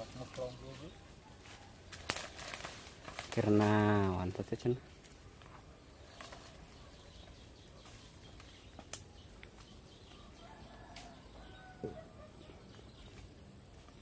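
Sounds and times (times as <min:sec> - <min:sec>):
faint bird calls: 0:05.3 - 0:13.3.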